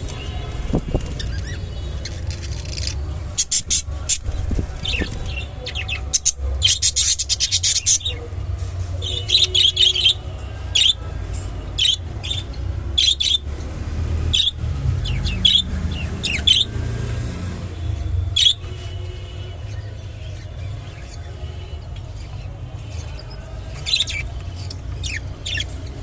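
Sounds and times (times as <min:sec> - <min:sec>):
budgerigars chirping: 0:04.8 - 0:08.4, 0:11.8 - 0:13.4, 0:14.3 - 0:16.7, 0:23.0 - 0:26.0.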